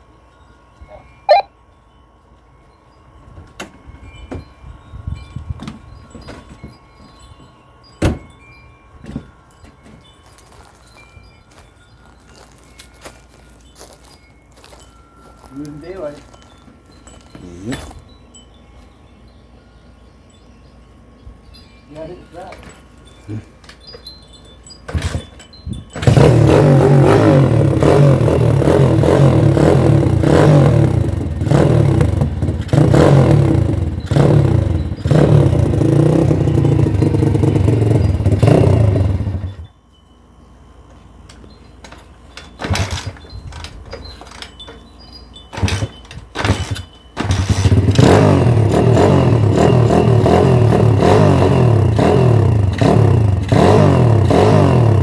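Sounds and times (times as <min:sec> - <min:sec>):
motorcycle engine revving: 0:26.0 - 0:39.6, 0:42.6 - 0:43.2, 0:45.6 - 0:55.0.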